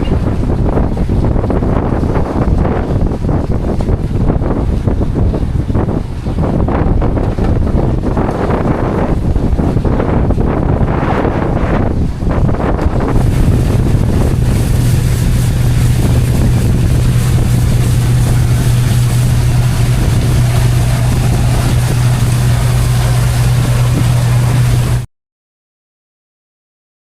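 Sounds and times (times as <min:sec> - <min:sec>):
boat engine droning: 0:00.0 - 0:25.1
water noise: 0:00.0 - 0:25.1
wind buffeting microphone: 0:00.0 - 0:25.1.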